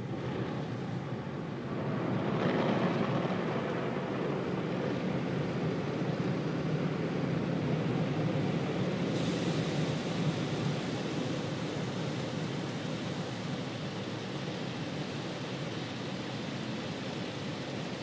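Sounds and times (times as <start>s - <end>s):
car wash machinery rushing: 0.0s - 18.0s
high hiss: 9.1s - 14.6s.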